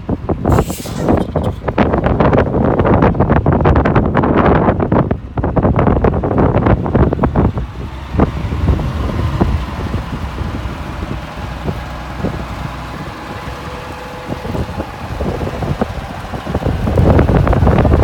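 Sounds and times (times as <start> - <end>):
truck diesel engine running: 0.0 - 18.0
wind buffeting microphone: 0.0 - 18.0.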